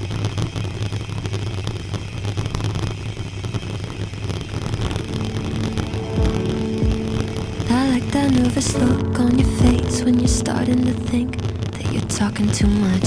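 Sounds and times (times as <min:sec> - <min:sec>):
music: 0:04.9 - 0:13.0.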